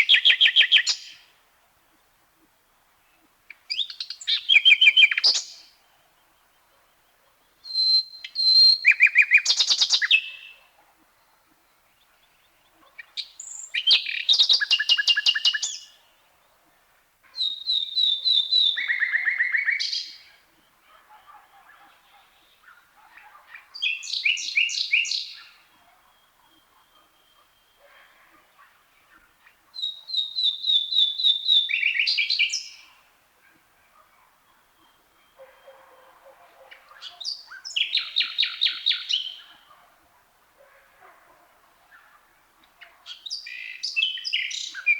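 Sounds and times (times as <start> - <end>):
nightingale singing: 0.0 - 1.3, 3.5 - 16.2, 17.3 - 28.1, 29.1 - 33.0, 36.7 - 39.8, 42.6 - 44.9.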